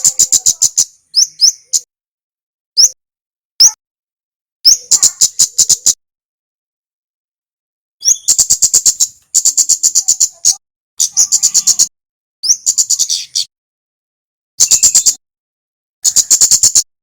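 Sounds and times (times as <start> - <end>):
songbird calling in dry chips: 8.0 - 13.5, 14.6 - 15.2.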